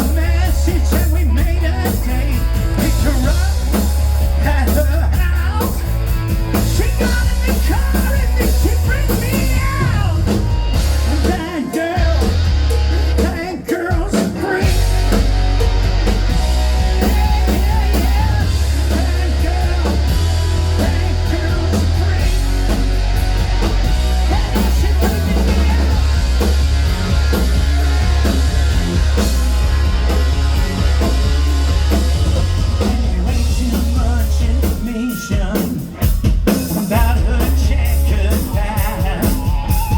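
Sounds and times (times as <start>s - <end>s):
rock and roll band playing: 0.0s - 39.9s
person singing: 16.5s - 26.5s, 32.7s - 39.9s.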